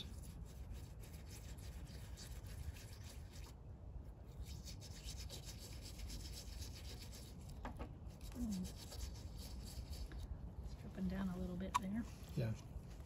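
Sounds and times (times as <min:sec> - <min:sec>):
brush scrubbing metal: 0:00.0 - 0:03.6, 0:04.3 - 0:10.2.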